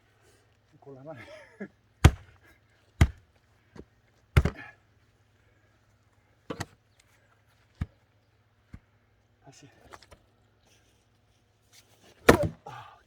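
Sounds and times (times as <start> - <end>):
axe striking log: 2.0 - 2.4, 3.0 - 3.2, 4.4 - 4.7, 12.3 - 12.6.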